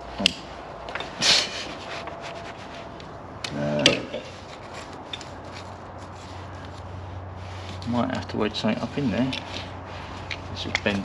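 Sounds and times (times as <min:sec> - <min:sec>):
hand tools scraping metal: 0:08.6 - 0:11.0.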